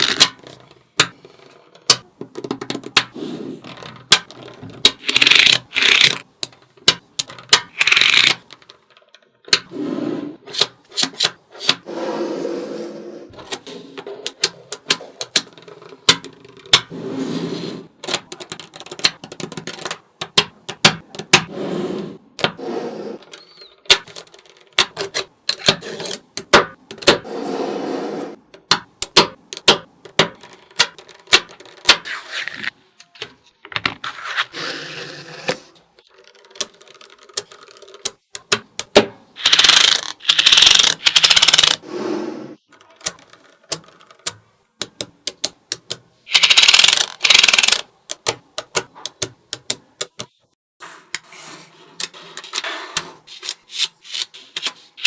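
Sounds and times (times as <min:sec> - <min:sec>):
balls rattling and sliding: 0:00.0 - 0:28.7, 0:29.3 - 0:44.3, 0:46.2 - 0:49.2
magnetic balls clicking together: 0:03.8 - 0:09.7, 0:18.0 - 0:21.4, 0:36.0 - 0:41.8, 0:42.7 - 0:50.4.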